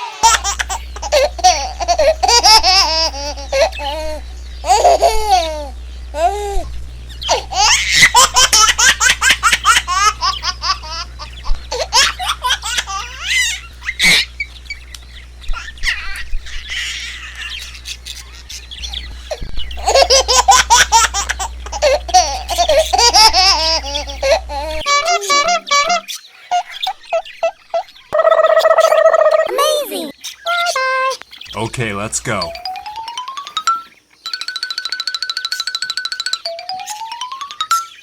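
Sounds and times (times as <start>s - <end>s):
baby-like laughter: 0.0s - 14.3s, 15.5s - 31.2s
low steady hum: 0.0s - 26.1s, 30.6s - 33.1s
chicks peeping: 0.0s - 33.1s.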